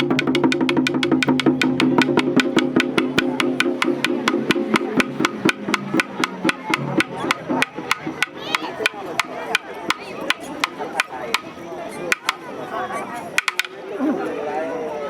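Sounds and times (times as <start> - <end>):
taiko drum strikes: 0.0 - 12.4, 13.4 - 13.8.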